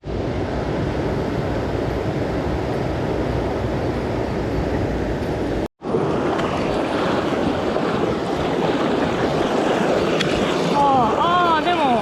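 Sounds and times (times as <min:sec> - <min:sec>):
mountain stream rushing: 0:03.4 - 0:12.0.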